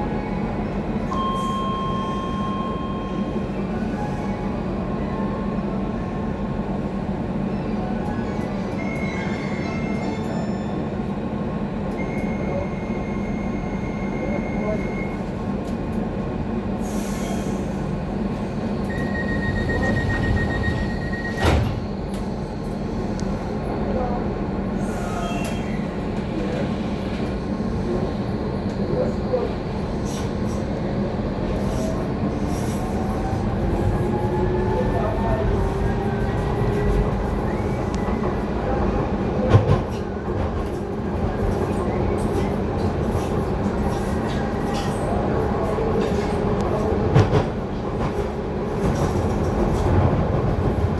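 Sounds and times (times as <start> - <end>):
train rumbling on track: 0.0 - 50.9.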